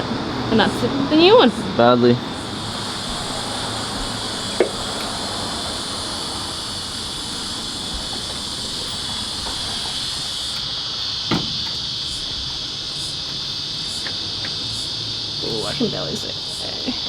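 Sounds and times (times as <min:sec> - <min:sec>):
crickets chirping: 0:00.0 - 0:17.0
short knock: 0:11.3 - 0:11.7.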